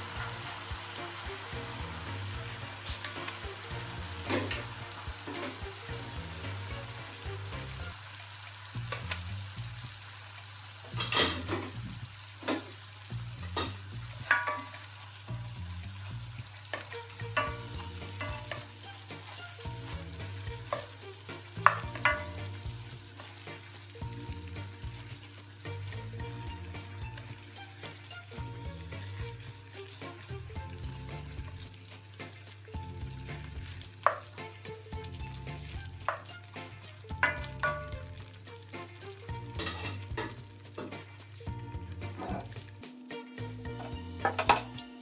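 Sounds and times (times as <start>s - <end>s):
food sizzling in a pan: 0.0s - 45.0s
utensil knocking and scraping pan: 0.2s - 7.4s, 13.4s - 15.6s, 16.7s - 31.6s, 33.3s - 41.2s.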